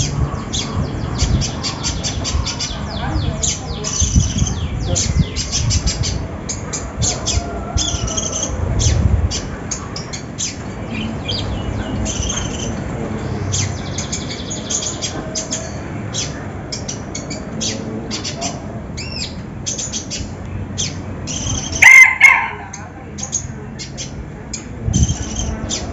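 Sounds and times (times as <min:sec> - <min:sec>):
bird singing rapid high chirps: 0:00.0 - 0:22.2.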